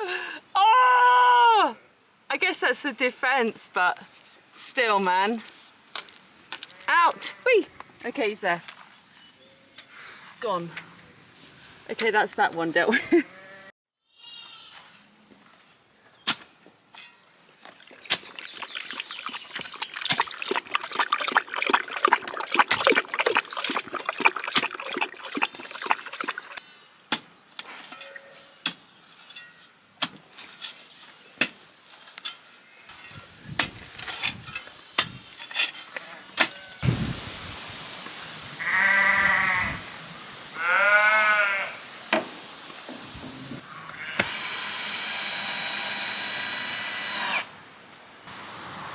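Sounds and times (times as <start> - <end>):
sheep or goat bleating: 13.2 - 14.8, 38.6 - 39.8, 40.6 - 41.8, 43.8 - 44.2.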